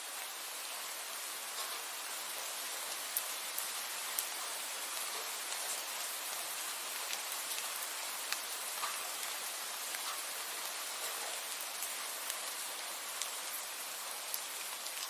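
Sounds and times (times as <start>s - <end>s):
steady rain hiss: 0.0s - 15.0s
raindrops ticking: 1.5s - 12.6s.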